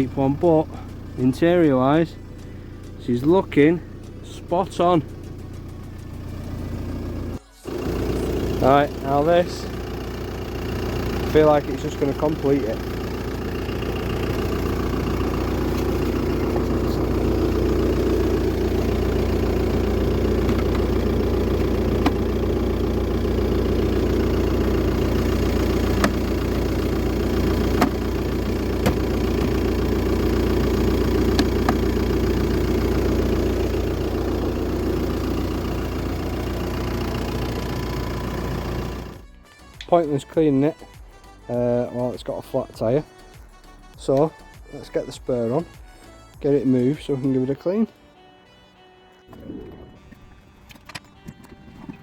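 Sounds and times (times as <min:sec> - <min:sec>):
engine idling: 0:00.0 - 0:39.4.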